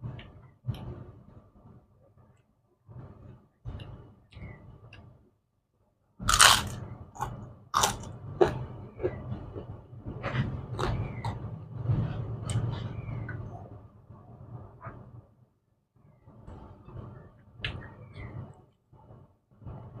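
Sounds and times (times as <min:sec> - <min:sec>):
crunching bites into crackers: 0:06.2 - 0:08.1.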